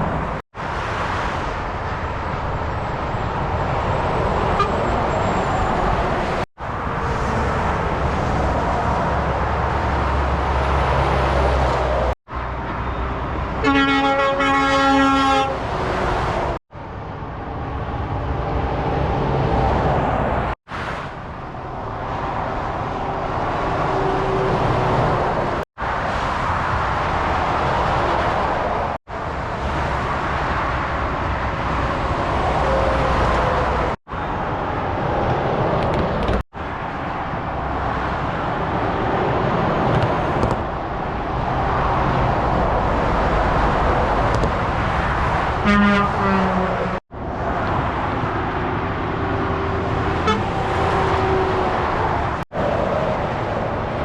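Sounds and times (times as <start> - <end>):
traffic passing at speed: 0.0 - 54.0
horn blasts: 13.6 - 15.6, 45.6 - 47.0, 50.2 - 50.6.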